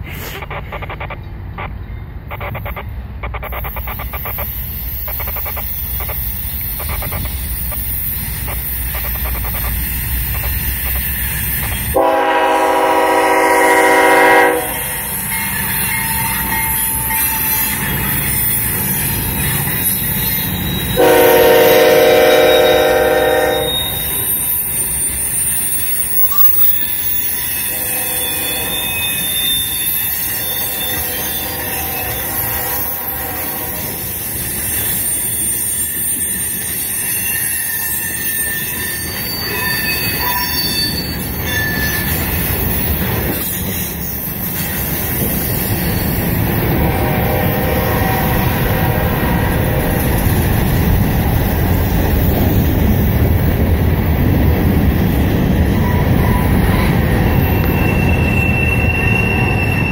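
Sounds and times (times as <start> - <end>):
wheel noise of passing cars: 0.0 - 23.0
diesel locomotive rumbling: 0.0 - 59.9
faint thin wheel squeal: 2.3 - 12.0, 14.9 - 46.2, 55.7 - 59.9
train air horn blasts: 11.6 - 15.1, 21.0 - 24.4, 27.4 - 34.1, 46.7 - 50.2.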